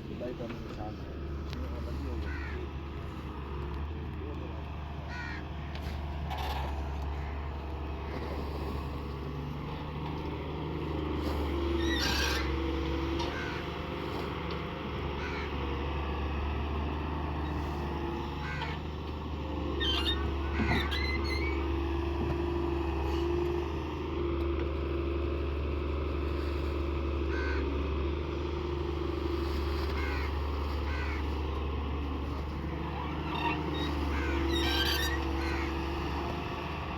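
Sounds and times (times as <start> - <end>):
farm machine engine running: 0.0 - 36.9
crows cawing: 2.1 - 2.8, 5.0 - 6.0, 7.0 - 7.6, 11.6 - 14.0, 15.1 - 16.0, 18.0 - 18.9, 19.8 - 21.6, 27.2 - 28.3, 29.2 - 36.8.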